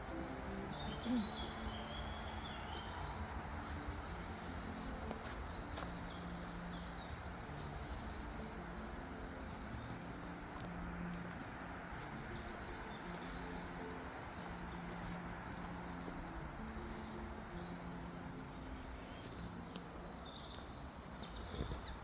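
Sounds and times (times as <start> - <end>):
faint bird chirps: 0.1 - 3.4.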